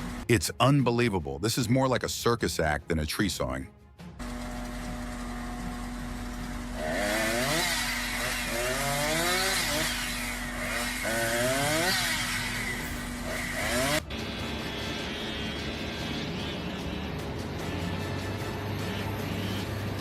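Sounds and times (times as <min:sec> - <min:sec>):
chainsaw revving and cutting: 0:06.5 - 0:14.1.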